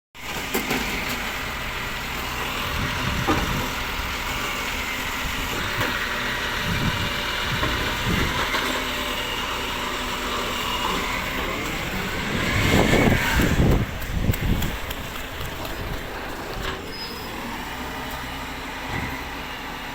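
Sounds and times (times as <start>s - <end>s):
diesel truck engine running: 0.2s - 19.9s
brief squeal: 16.8s - 17.4s.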